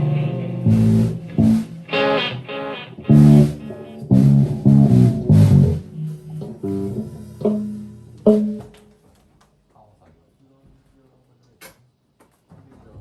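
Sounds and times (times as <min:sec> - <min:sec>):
plucked string instrument: 0:00.0 - 0:08.9.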